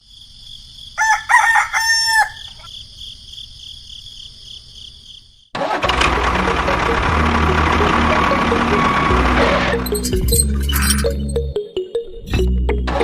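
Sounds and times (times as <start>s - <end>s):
insects chirring: 0.0s - 5.5s
rooster crowing: 1.0s - 2.7s.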